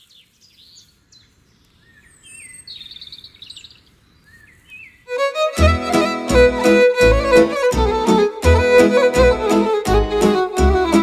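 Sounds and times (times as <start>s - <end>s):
wild birds chirping: 0.0s - 5.3s
faint outdoor hiss: 0.0s - 11.0s
folk band music with violin: 5.1s - 11.0s.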